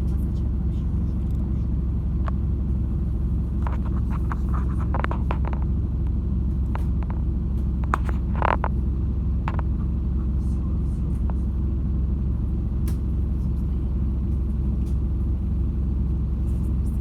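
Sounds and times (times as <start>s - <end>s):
interior rattles and clicks: 0.0s - 11.6s
bus engine and road rumble: 0.0s - 17.0s.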